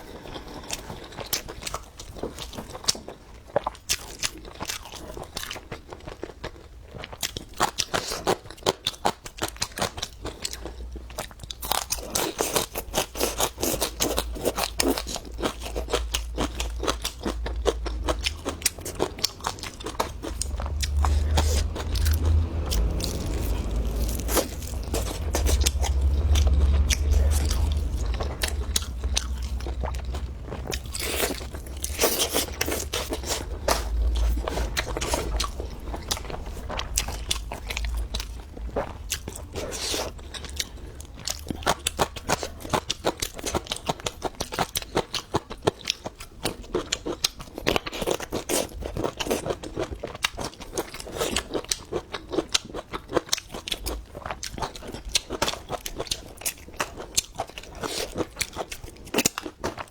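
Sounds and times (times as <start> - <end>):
chewing crunchy food: 0.0 - 59.9
low rumble: 14.1 - 43.9.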